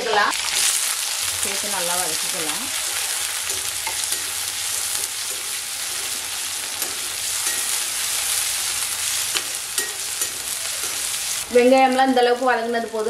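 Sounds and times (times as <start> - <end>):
vegetables sizzling in hot oil: 0.0 - 13.0
spoon scraping and clinking pan: 2.8 - 8.4, 9.2 - 11.2.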